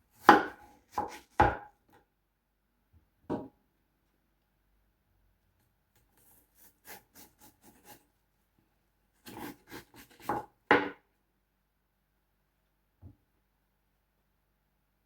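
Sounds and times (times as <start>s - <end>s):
knife cutting watermelon: 0.2s - 1.6s, 6.0s - 8.0s, 9.2s - 10.6s.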